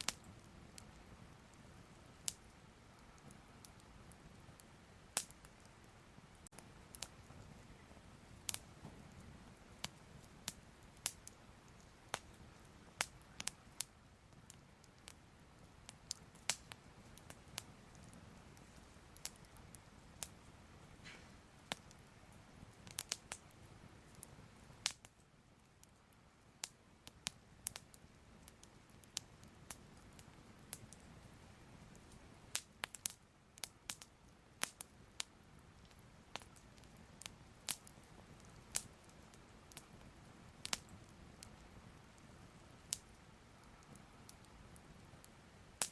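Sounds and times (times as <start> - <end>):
fire crackling and popping: 0.0 - 45.9.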